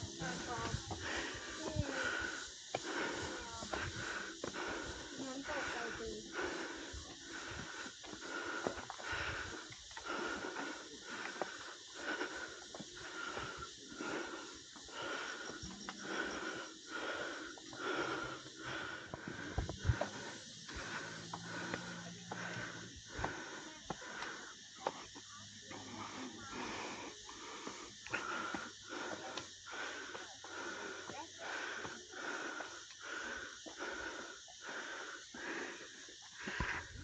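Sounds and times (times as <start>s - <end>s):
heavy rhythmic breathing: 0.0s - 37.0s.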